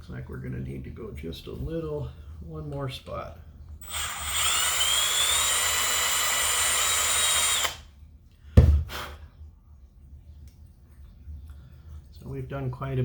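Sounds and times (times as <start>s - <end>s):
electric drill whining: 3.8s - 7.9s.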